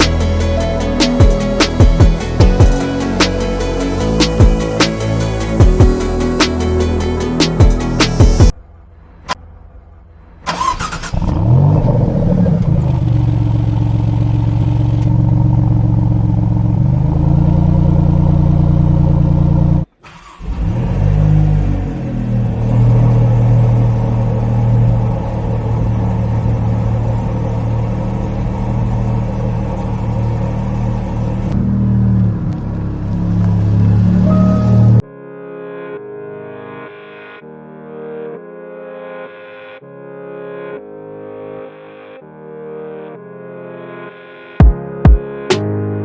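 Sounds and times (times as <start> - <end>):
car engine starting and idling: 0.0 - 35.0.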